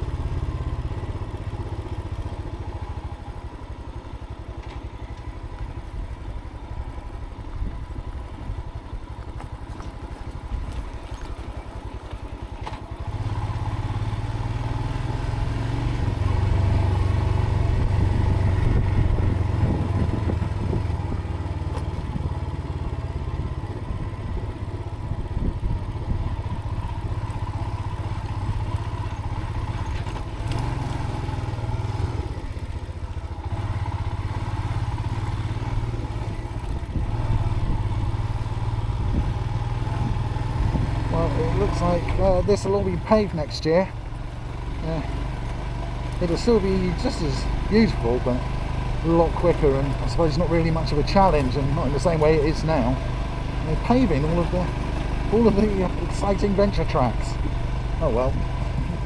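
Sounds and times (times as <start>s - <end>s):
motorcycle engine running: 0.0s - 59.0s
low wind rumble: 16.0s - 22.5s, 36.0s - 59.0s.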